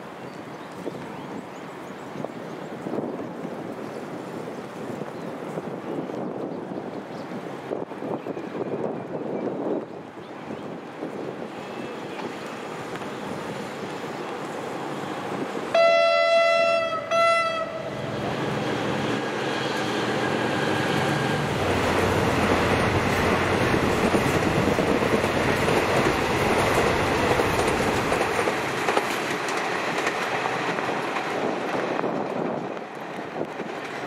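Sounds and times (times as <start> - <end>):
train rumbling past: 11.0 - 34.0
locomotive horn blasts: 15.7 - 18.0.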